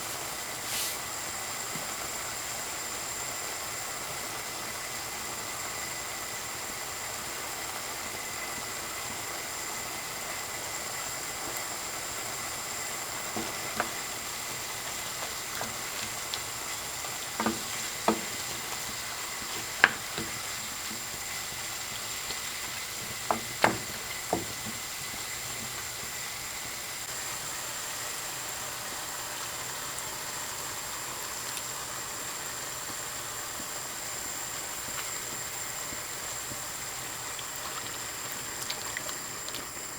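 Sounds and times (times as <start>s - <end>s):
food sizzling in a frying pan: 0.0s - 39.9s
utensil knocking against pan: 17.3s - 21.2s, 23.0s - 25.2s.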